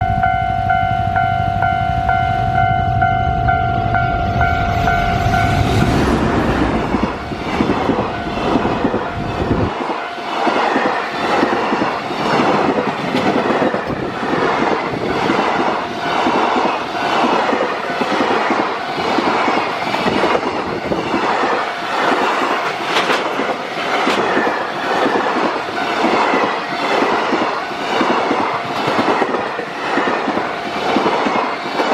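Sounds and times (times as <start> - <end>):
warning tone: 0.0 - 6.4
electric locomotive passing: 0.0 - 31.9
freight wagons clattering over rail joints: 22.9 - 25.2.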